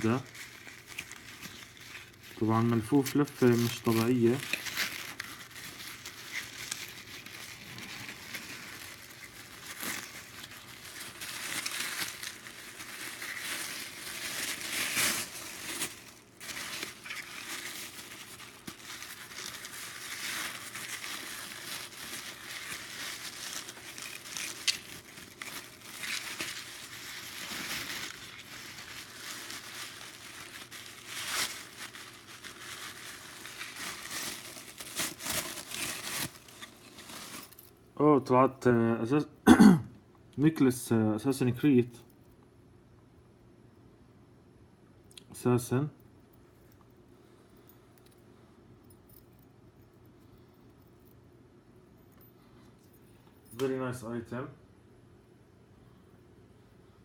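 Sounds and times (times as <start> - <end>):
packaging wrap crinkling and tearing: 0.0 - 37.7.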